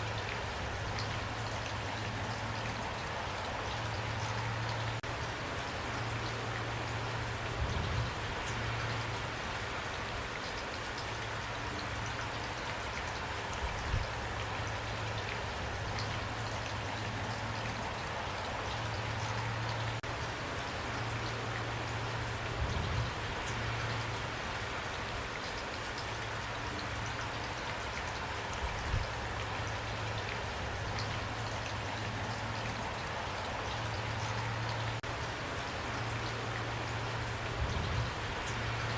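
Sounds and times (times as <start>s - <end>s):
rain falling: 0.0s - 38.9s
raindrops pattering: 0.0s - 38.9s.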